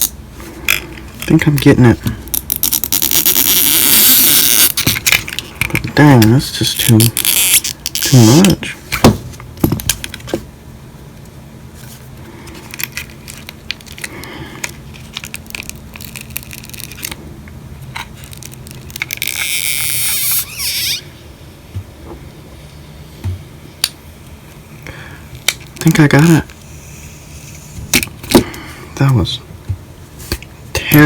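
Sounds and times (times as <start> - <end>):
crackling tear: 0.0 - 8.7, 12.5 - 17.2, 18.0 - 21.1.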